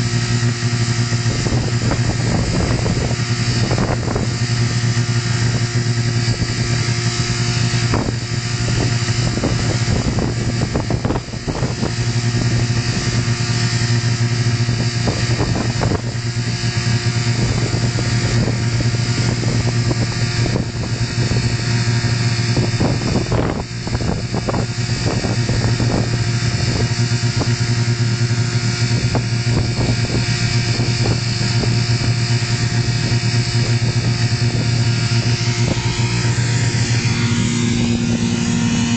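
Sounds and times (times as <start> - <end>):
car engine droning: 0.0 - 38.9.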